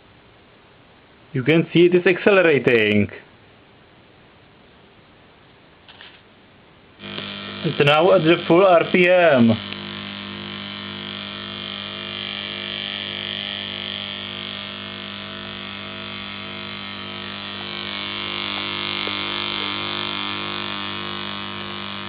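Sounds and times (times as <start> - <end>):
electric motors humming and whining: 7.0 - 22.0.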